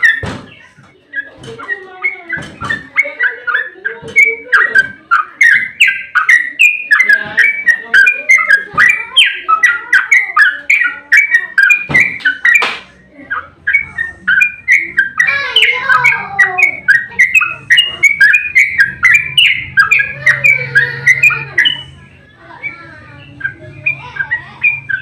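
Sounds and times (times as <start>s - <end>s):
bulbul singing chirpy notes: 0.0s - 25.0s.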